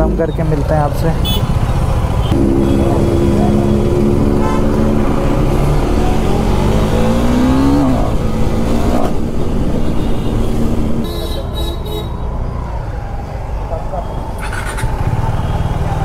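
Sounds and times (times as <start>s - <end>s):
motorcycle engine accelerating: 2.3s - 11.0s.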